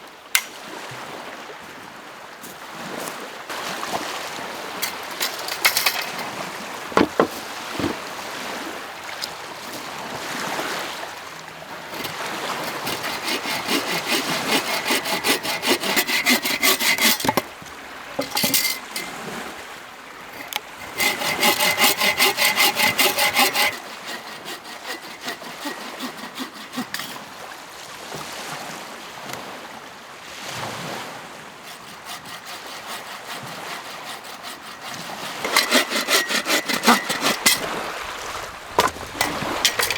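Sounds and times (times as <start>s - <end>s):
hand saw cutting wood: 0.4s - 0.6s, 4.7s - 8.1s, 11.7s - 27.5s, 31.6s - 39.9s
sharp knocks: 7.0s - 8.0s, 38.8s - 39.9s.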